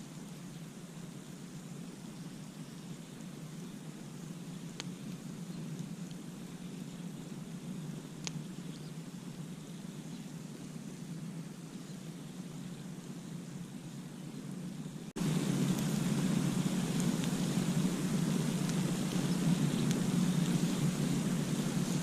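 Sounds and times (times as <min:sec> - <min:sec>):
campfire burning: 0:00.0 - 0:22.0
campfire pops: 0:04.7 - 0:06.3, 0:08.0 - 0:08.5, 0:15.2 - 0:22.0.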